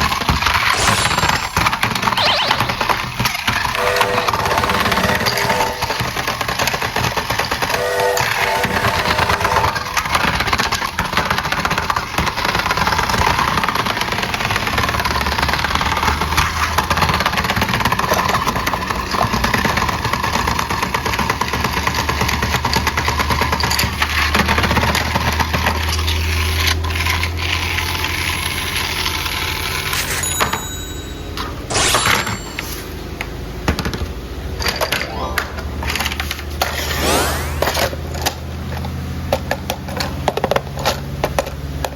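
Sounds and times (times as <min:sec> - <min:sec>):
toy motor and gears whirring: 0:25.6 - 0:30.2.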